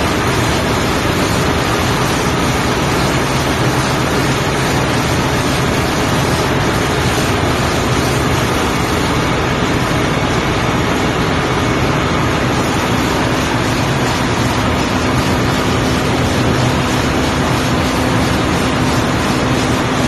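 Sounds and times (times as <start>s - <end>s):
engine room machinery din: 0.0s - 20.0s.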